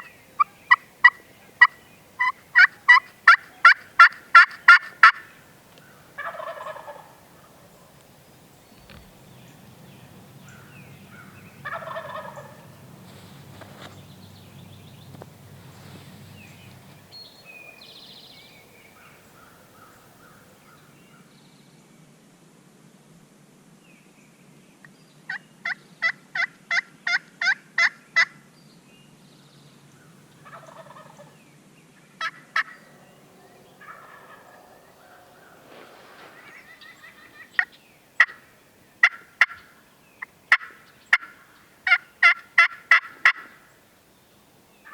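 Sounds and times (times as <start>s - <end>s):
sharp turkey calls: 0.0s - 8.0s, 10.1s - 17.9s, 30.3s - 31.4s, 32.2s - 43.8s
wild turkey gobbling: 0.0s - 8.0s, 9.6s - 17.8s, 30.3s - 31.4s, 32.2s - 43.7s.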